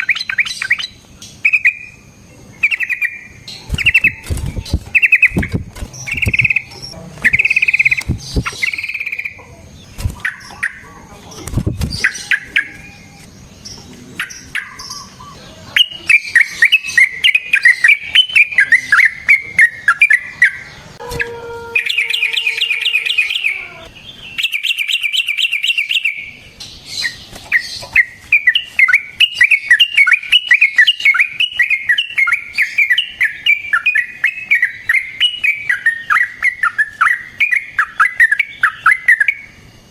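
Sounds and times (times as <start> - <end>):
bird singing with trills: 0.0 - 39.9.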